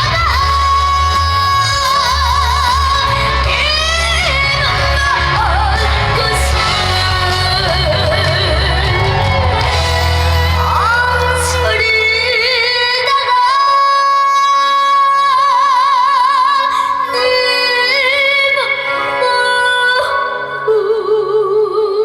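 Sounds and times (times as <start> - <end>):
band accompaniment: 0.0 - 13.7
boy singing with vibrato: 0.0 - 22.0.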